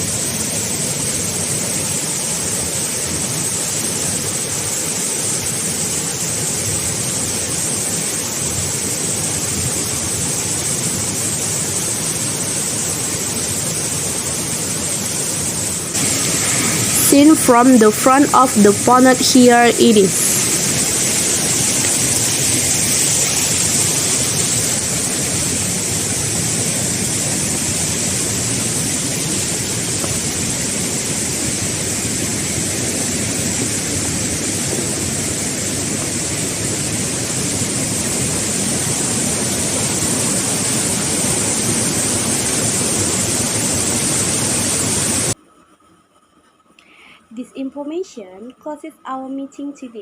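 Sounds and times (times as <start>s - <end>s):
waterfall splashing on rock: 15.9s - 17.0s, 20.4s - 45.4s.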